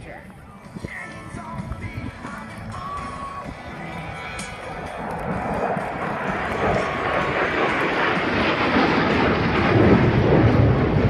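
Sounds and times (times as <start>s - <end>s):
fighter jets passing: 1.2s - 11.0s.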